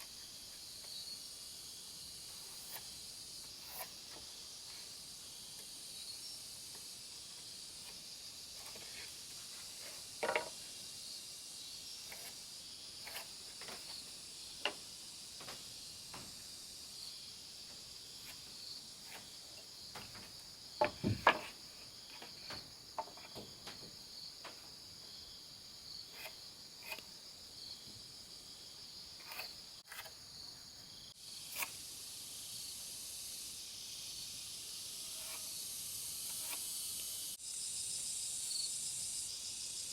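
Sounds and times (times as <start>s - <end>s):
insects chirring: 0.0s - 39.9s
sharp knocks and taps: 19.9s - 21.6s.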